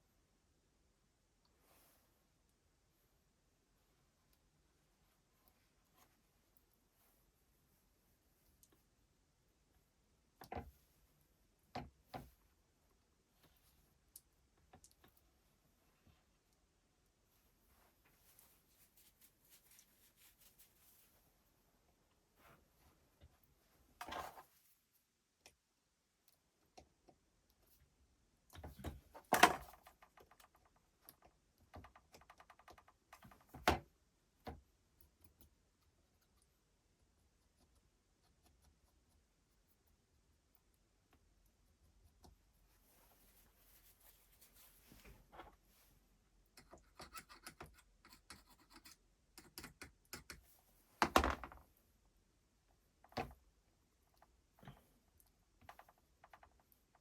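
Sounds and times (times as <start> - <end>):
light clicks and scratches: 17.4 - 21.4, 22.4 - 25.6, 26.2 - 36.6, 37.2 - 51.7, 52.7 - 57.0
small parts clicking and knocking: 28.5 - 33.8.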